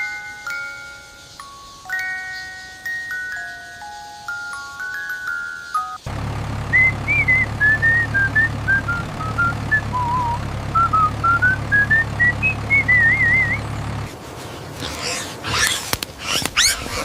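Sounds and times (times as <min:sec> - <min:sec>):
low engine hum: 0:06.0 - 0:17.0
scratchy rustling: 0:14.1 - 0:17.0.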